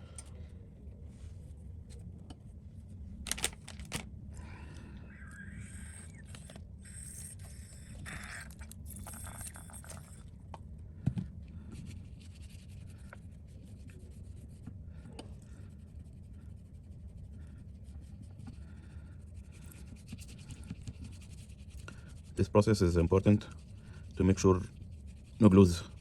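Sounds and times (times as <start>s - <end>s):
steady low hum: 0.0s - 26.0s
scraping on phone screen: 5.1s - 10.2s.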